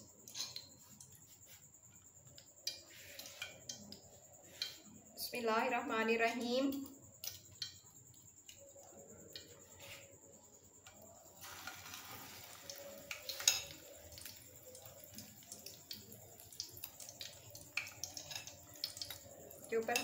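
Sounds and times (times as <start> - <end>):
cutlet sizzling in hot oil: 2.6 - 5.0, 11.2 - 20.0.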